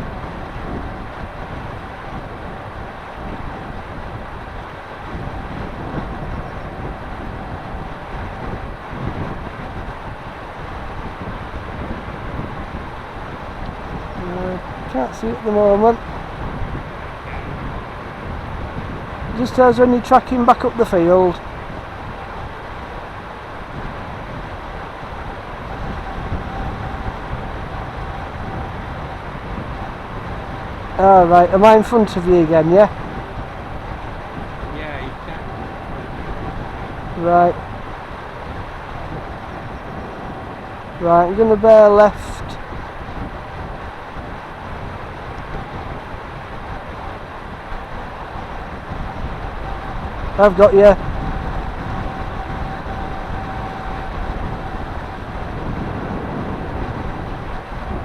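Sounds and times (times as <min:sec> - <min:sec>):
wind buffeting microphone: 0:00.0 - 0:58.0
faint thin whine: 0:47.9 - 0:58.0.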